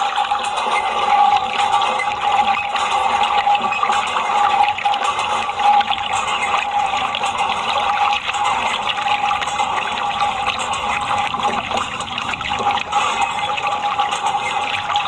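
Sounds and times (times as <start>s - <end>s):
rushing splashing water: 0.0s - 15.0s
steady high hum: 5.5s - 15.0s.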